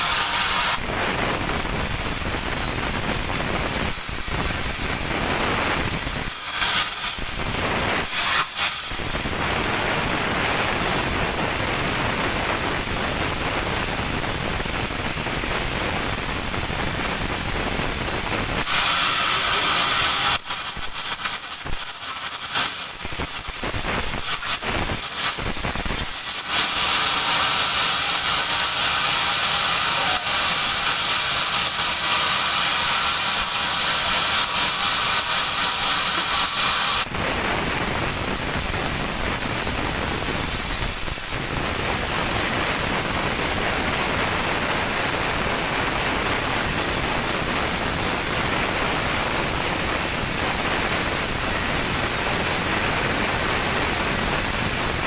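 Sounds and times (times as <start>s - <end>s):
band saw running: 0.0s - 55.0s
dense even hiss: 0.0s - 55.0s.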